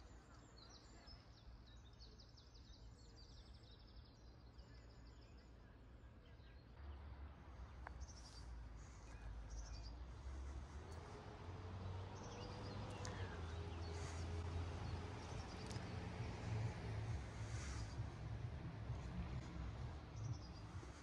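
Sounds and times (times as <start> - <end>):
small birds chirping and trilling: 7.9 - 21.0.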